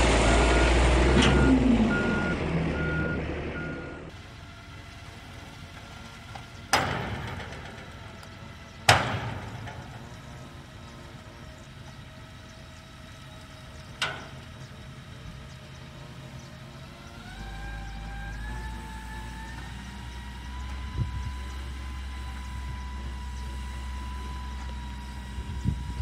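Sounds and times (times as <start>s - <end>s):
vehicle engine whine: 0.0s - 26.0s.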